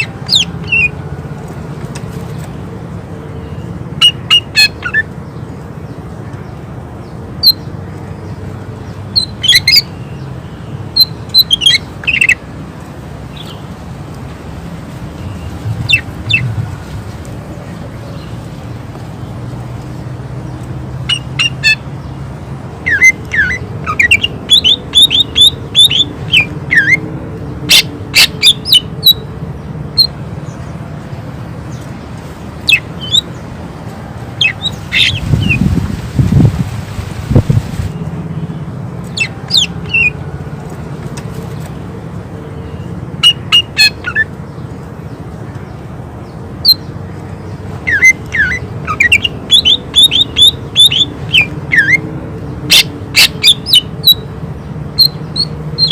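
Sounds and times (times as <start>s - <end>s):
bird chirping and whistling: 0.0s - 0.9s, 9.2s - 10.0s, 11.0s - 12.4s, 15.8s - 16.5s, 21.1s - 21.8s, 22.8s - 27.0s, 27.7s - 29.2s, 32.7s - 33.3s, 34.4s - 35.7s, 39.1s - 40.2s, 43.2s - 44.3s, 47.8s - 52.0s, 52.7s - 54.2s, 55.0s - 55.9s.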